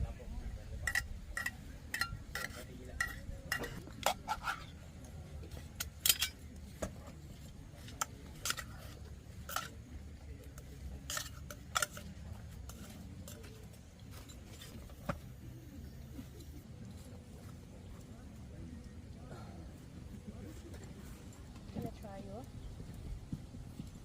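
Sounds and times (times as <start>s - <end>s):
utensils clinking on dishes: 0.8s - 4.7s, 5.8s - 6.5s, 7.8s - 9.8s, 10.5s - 13.5s.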